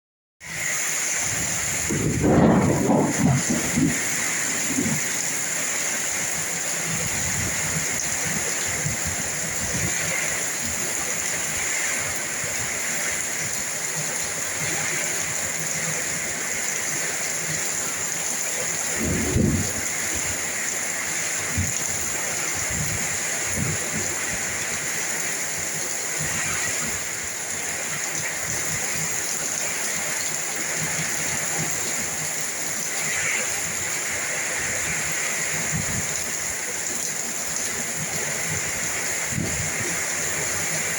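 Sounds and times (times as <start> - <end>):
heavy rain in strong wind: 0.4 - 40.9.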